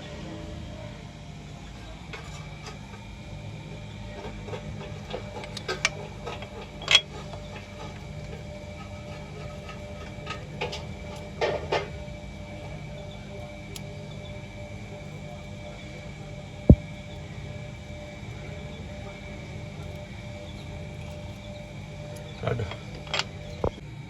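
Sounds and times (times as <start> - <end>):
steady low hum: 0.0 - 24.0
clinks and knocks of car repair: 3.8 - 14.2, 19.4 - 23.8.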